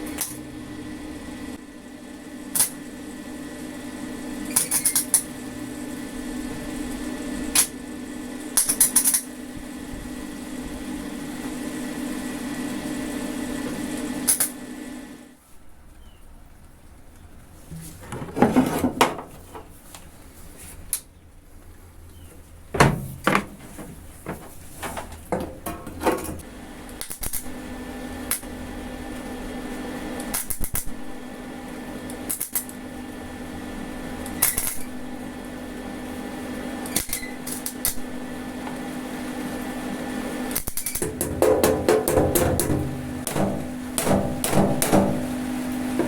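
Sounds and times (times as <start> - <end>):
steady hum: 37.1 - 46.0
sharp knocks: 41.0 - 45.3.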